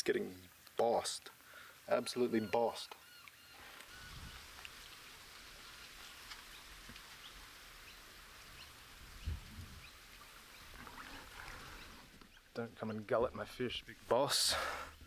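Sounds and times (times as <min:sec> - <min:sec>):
steady outdoor hiss: 0:00.0 - 0:15.0
faint bird chirps: 0:02.1 - 0:05.2.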